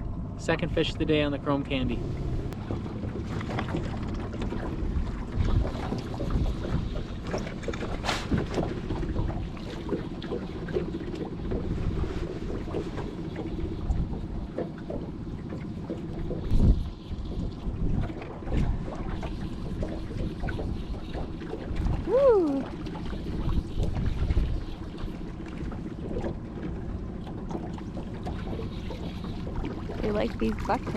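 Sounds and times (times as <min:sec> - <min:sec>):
boat motor running: 0:00.0 - 0:30.9
knocks and clatter in boat: 0:00.0 - 0:30.9
wind buffeting microphone: 0:01.0 - 0:09.7, 0:16.2 - 0:25.2.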